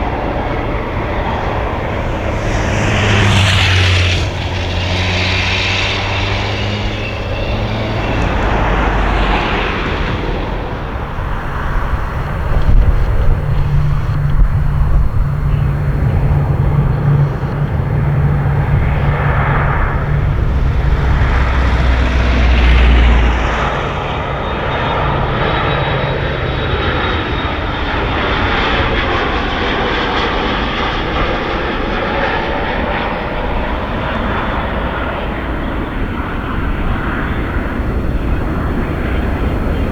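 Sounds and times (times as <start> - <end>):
airplane engines passing: 0.0 - 39.9.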